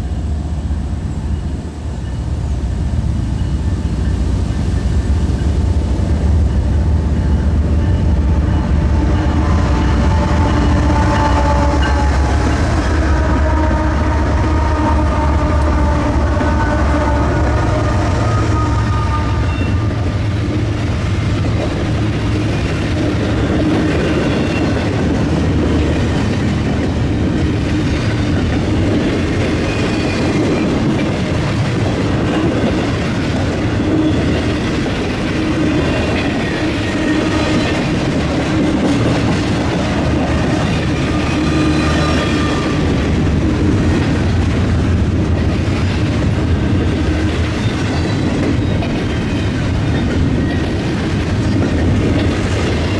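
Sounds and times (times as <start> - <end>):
freight train wheels clattering: 0.0 - 52.9
high wheel squeal: 40.4 - 43.2.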